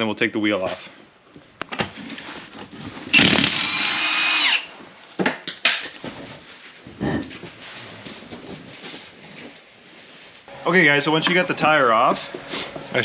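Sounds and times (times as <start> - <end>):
power tool whine: 3.1 - 4.7.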